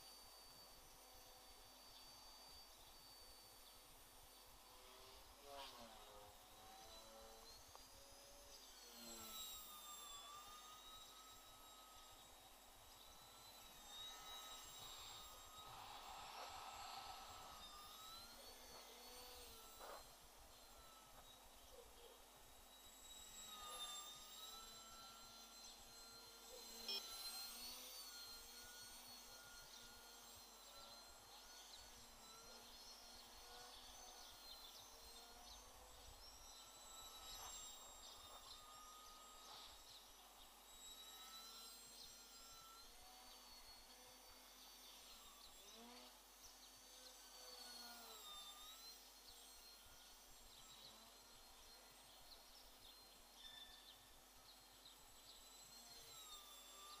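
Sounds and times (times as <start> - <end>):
quadcopter motors whining: 0.0 - 57.0
steady hiss: 14.8 - 17.7.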